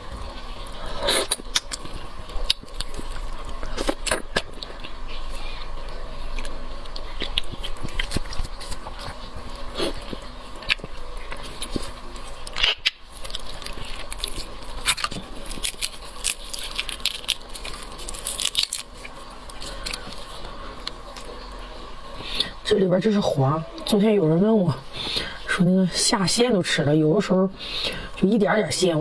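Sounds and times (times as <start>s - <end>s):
chewing and biting shrimp: 0.2s - 21.4s.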